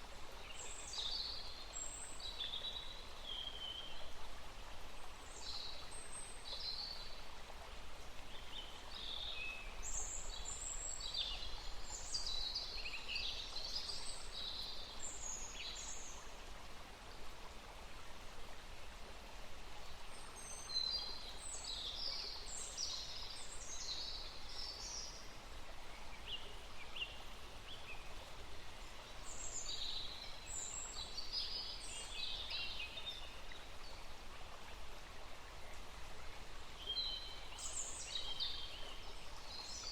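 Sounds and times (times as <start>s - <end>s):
steady background hiss: 0.0s - 39.9s
songbirds chirping: 19.8s - 39.9s.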